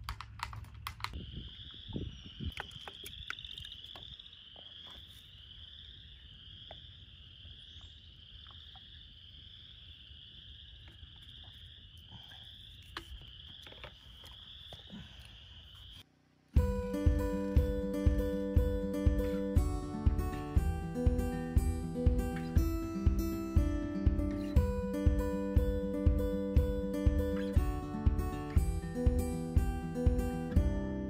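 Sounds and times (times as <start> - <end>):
frogs or insects calling: 1.0 - 16.1
acoustic guitar music: 16.6 - 31.0.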